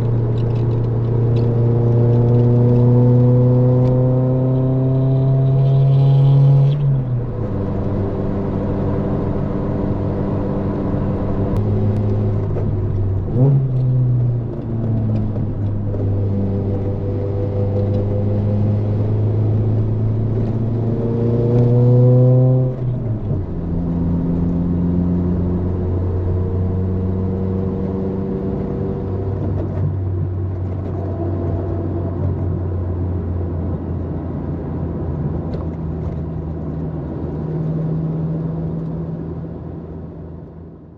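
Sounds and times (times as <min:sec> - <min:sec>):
car engine revving while driving: 0:00.0 - 0:40.5.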